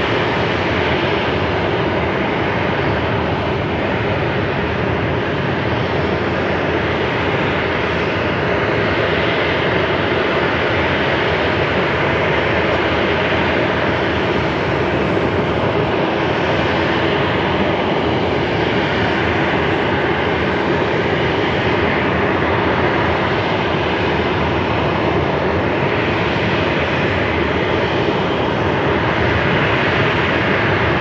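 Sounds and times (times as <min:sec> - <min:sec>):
jet airliner landing roar: 0:00.0 - 0:31.0.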